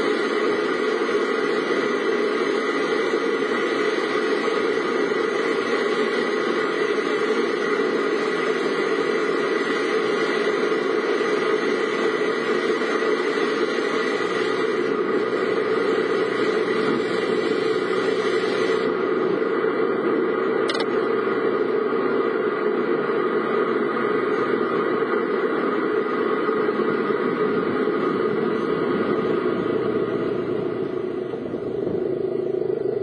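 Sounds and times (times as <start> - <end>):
car engine running: 0.0 - 33.0
tyres on the road: 0.0 - 33.0
brief click: 20.6 - 21.0.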